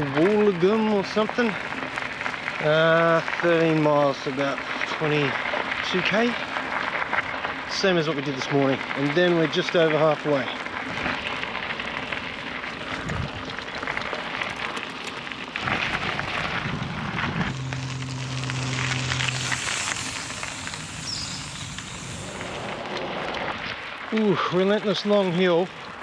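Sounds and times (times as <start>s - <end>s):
bicycle tyres crackling over gravel: 0.0s - 26.0s
wind on microphone: 13.0s - 13.5s, 15.6s - 23.9s
steady hum: 15.6s - 24.0s.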